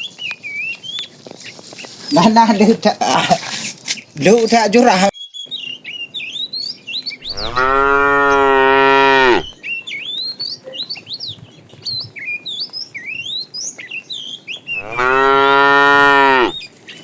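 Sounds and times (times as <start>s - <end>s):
birds chirping: 0.0s - 17.0s
cow mooing: 7.3s - 9.6s, 14.8s - 16.6s.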